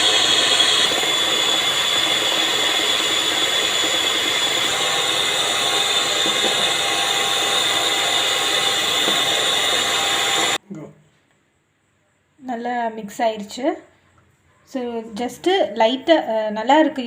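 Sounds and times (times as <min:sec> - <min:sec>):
electric hand mixer whining: 0:00.0 - 0:10.6.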